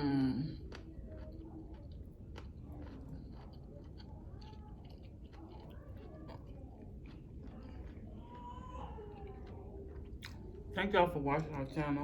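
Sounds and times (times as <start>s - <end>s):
mouth clicks while chewing: 0.6s - 10.6s.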